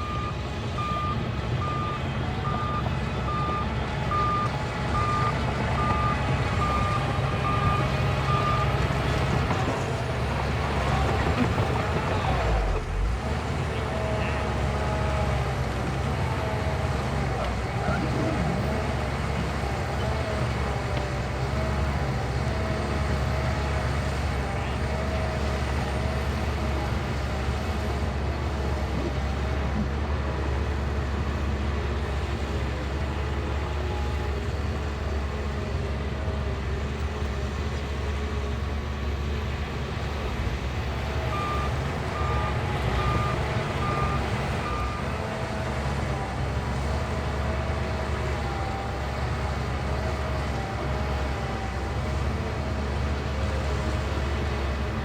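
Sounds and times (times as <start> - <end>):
reversing alarm beeping: 0.0 - 8.8
bulldozer diesel engine running: 0.0 - 55.0.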